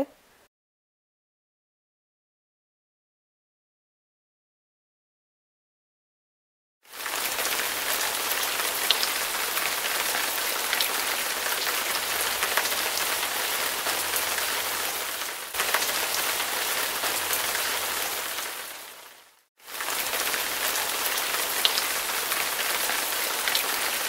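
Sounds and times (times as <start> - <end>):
steady rain: 6.9 - 24.0
water drips: 7.0 - 18.8, 19.7 - 24.0.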